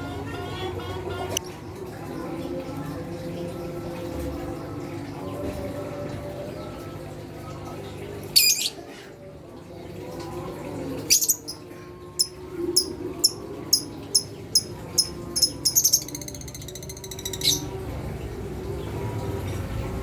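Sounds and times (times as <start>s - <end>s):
lovebirds chirping and trilling: 8.4s - 8.8s, 11.1s - 11.6s, 12.2s - 17.8s.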